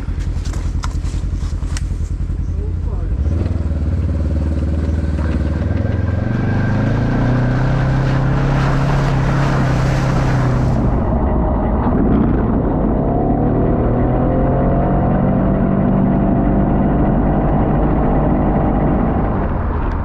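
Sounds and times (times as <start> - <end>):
utility vehicle engine running: 0.0 - 20.0.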